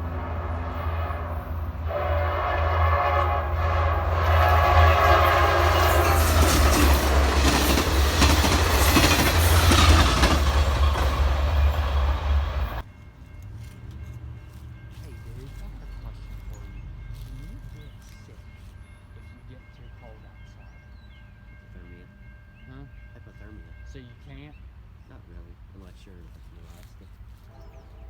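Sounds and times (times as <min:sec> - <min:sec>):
train horn: 0:00.0 - 0:12.8, 0:27.4 - 0:28.0
train wheels clattering: 0:03.6 - 0:22.0.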